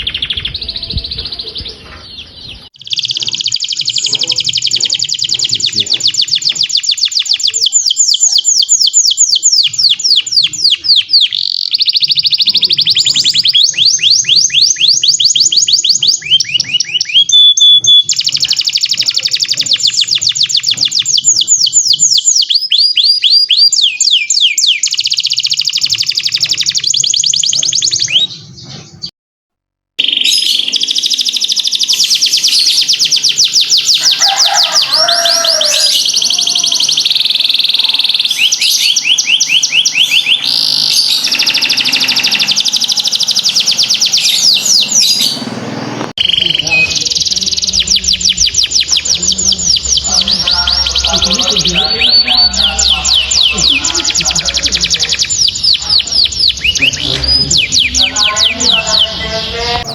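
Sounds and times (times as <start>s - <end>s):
canary singing trills: 0.0s - 29.1s, 30.0s - 59.9s.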